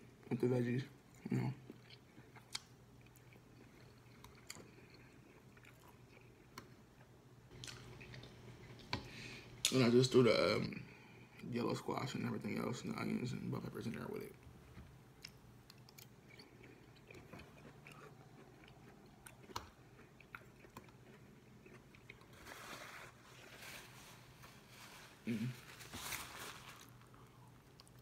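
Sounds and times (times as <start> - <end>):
wet chewing with mouth clicks: 1.6 - 9.1, 15.2 - 22.3.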